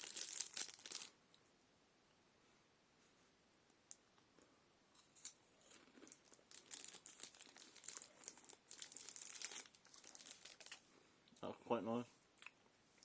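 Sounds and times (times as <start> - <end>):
plastic wrapper crinkling: 0.0 - 1.1, 5.2 - 10.8
wrapper tearing crackles: 0.0 - 1.1, 6.1 - 10.8.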